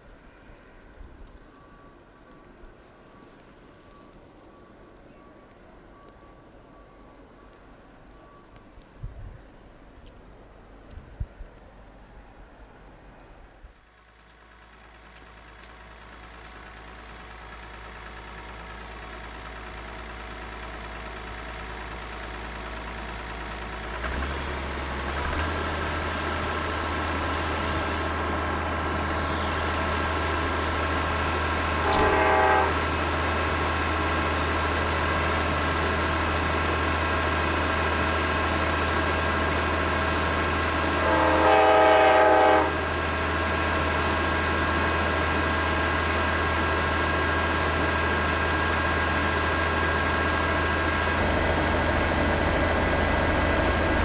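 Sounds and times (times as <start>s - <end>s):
diesel locomotive engines droning: 0.0s - 54.0s
locomotive horn blast: 27.4s - 34.1s, 40.8s - 43.0s.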